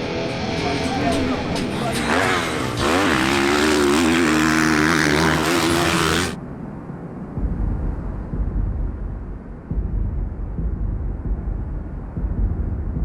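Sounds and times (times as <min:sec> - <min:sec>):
motocross bike engine revving: 0:00.9 - 0:06.4.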